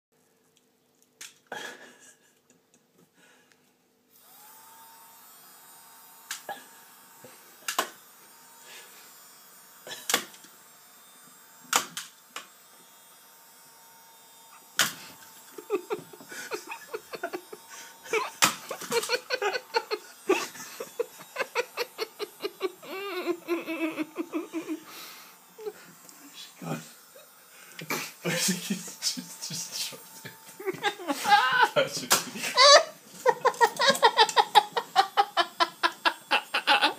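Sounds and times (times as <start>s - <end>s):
person laughing: 1.5s - 2.8s, 15.4s - 26.5s, 27.1s - 36.9s
vacuum cleaner running: 4.1s - 36.9s.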